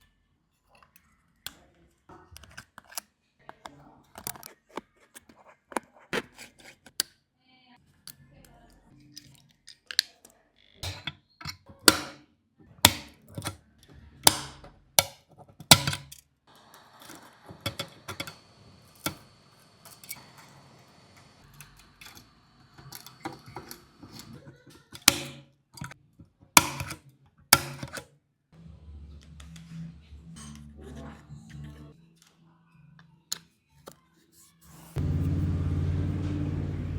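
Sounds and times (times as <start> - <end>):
hand tools clicking and tapping: 10.8 - 12.2, 12.8 - 13.6, 14.2 - 16.2, 17.0 - 18.4, 21.2 - 28.0
low hum: 35.0 - 36.9.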